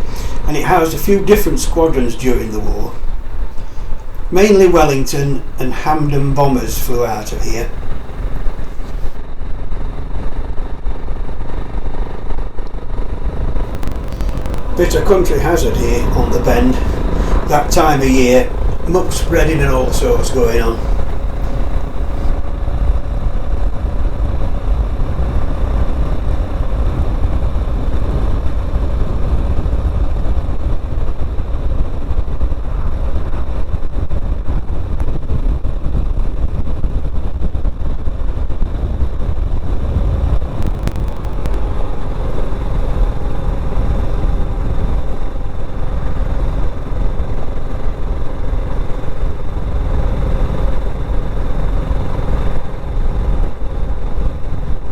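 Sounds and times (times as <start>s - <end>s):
wind noise: 0.0s - 9.2s, 13.6s - 22.3s, 38.3s - 45.0s
motorcycle engine rumble: 13.7s - 22.3s.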